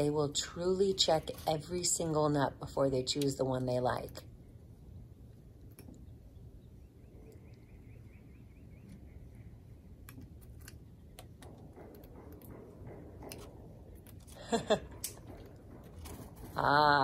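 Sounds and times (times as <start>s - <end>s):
bird pecking at peanut shells: 10.0s - 16.6s.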